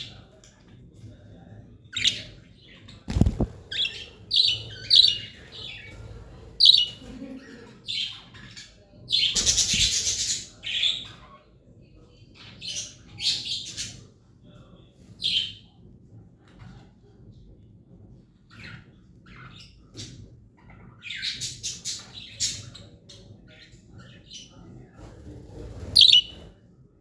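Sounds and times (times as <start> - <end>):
budgerigars chirping: 3.7 - 5.9, 6.6 - 7.0, 25.9 - 26.4.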